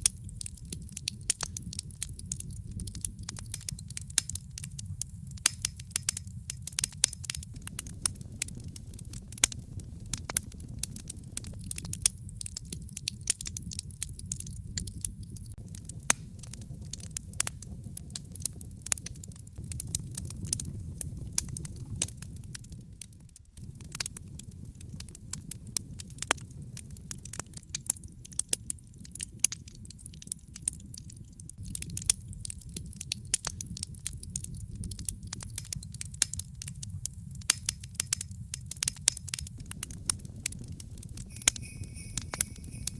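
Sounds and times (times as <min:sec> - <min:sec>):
steady low rumble: 0:00.0 - 0:05.5, 0:06.9 - 0:18.6, 0:19.5 - 0:23.0, 0:39.3 - 0:42.9
wood fire crackling and popping: 0:00.0 - 0:42.9.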